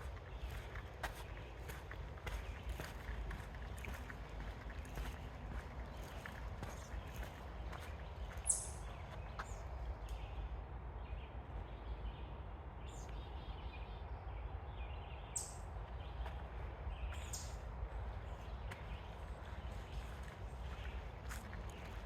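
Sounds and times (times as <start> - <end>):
low outdoor rumble: 0.0 - 22.0
high bird chirps: 8.3 - 8.9.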